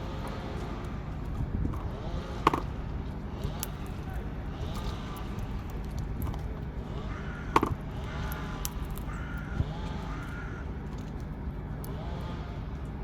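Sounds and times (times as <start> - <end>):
crow cawing: 6.8 - 10.8.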